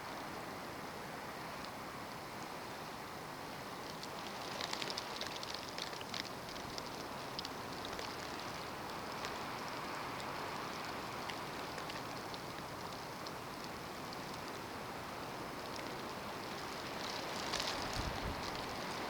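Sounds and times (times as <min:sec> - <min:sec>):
snow grains ticking: 0:03.8 - 0:19.0.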